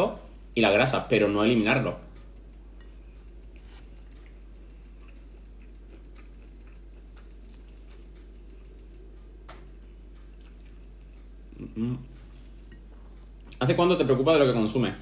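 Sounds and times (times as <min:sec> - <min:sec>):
steady low hum: 0:00.0 - 0:15.0
person chewing quietly: 0:01.9 - 0:13.6.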